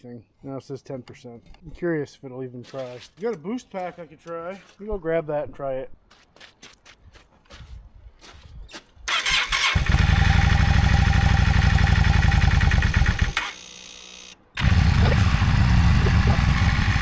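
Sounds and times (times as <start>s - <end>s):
motorcycle engine starting and idling: 9.1s - 13.7s, 14.6s - 17.0s.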